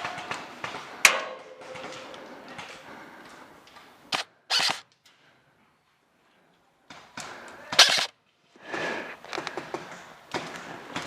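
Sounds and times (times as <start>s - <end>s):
airsoft gun shots: 4.1s - 4.8s, 7.7s - 8.1s.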